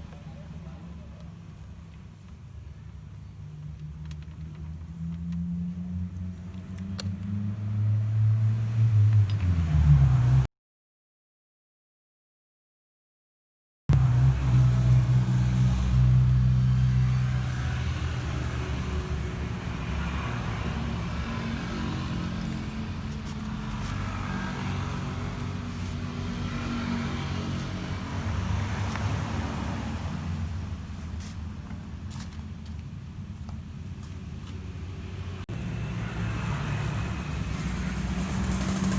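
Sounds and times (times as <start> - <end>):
scooter engine idling: 35.6 - 38.9.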